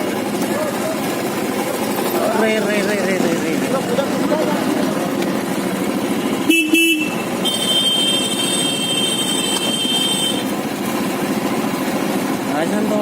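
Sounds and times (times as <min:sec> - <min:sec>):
motorcycle engine: 0:00.0 - 0:13.0
road noise: 0:00.0 - 0:13.0
short horn beeps: 0:06.5 - 0:10.5.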